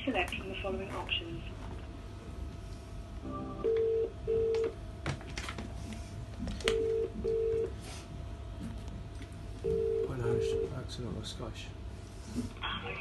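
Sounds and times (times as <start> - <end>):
telephone ringback tone: 3.4 - 4.7, 6.7 - 7.7, 9.7 - 10.7.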